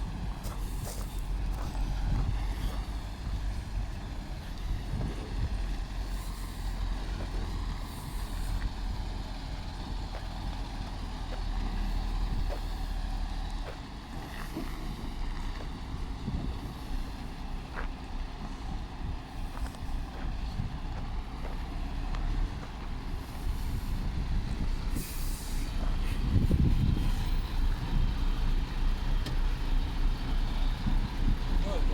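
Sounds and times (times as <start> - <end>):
truck diesel engine running: 0.0 - 31.9
air brakes hissing: 6.0 - 8.8, 23.1 - 27.4.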